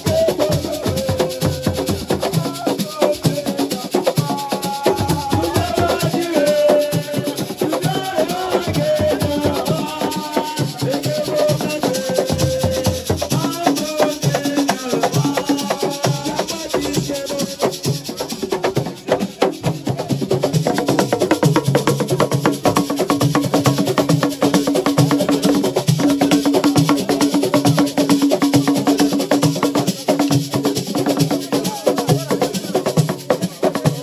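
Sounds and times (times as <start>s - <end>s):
person singing wavering melody: 0.0s - 18.2s
hand percussion: 0.0s - 34.0s
rattling shakers: 0.0s - 34.0s.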